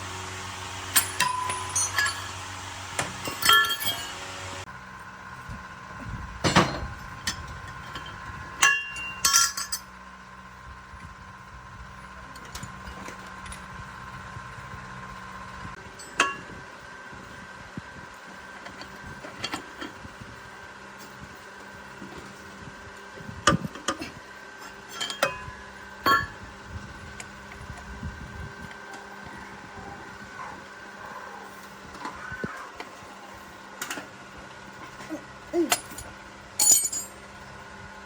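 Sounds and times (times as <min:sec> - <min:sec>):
steady low hum: 0:00.0 - 0:38.0
metal tools clinking: 0:00.9 - 0:04.2, 0:06.5 - 0:09.9, 0:24.9 - 0:25.5, 0:35.6 - 0:37.2.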